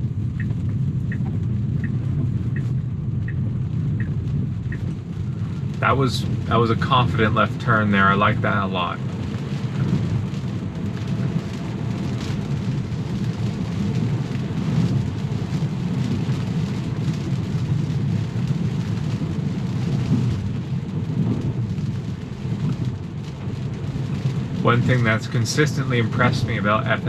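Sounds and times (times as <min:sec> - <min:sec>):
rain: 0:00.0 - 0:27.0
tyres rumbling on wet road: 0:00.0 - 0:27.0.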